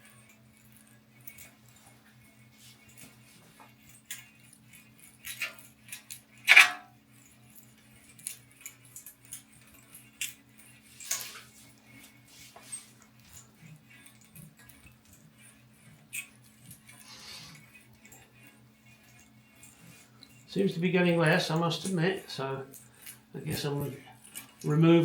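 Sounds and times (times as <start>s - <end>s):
razor blade scraping glass: 13.5s - 20.5s.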